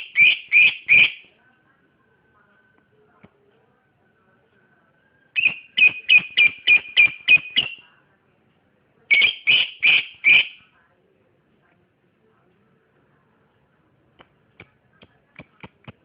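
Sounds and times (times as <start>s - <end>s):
bird chirping high-pitched: 0.0s - 1.3s, 5.3s - 7.9s, 9.1s - 10.6s.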